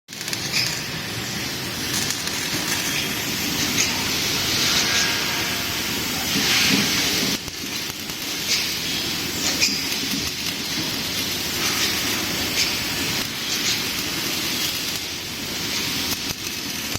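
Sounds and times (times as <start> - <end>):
laser welding machine hissing: 0.1 - 16.9.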